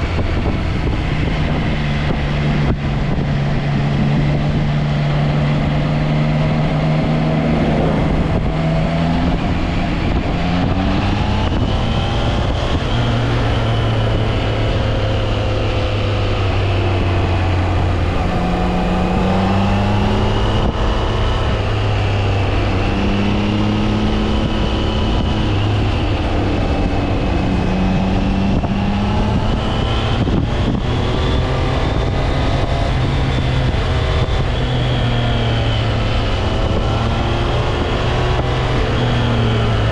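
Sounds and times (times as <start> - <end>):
wind noise on microphone: 0.0 - 39.9
motorcycle engine running: 17.6 - 23.2.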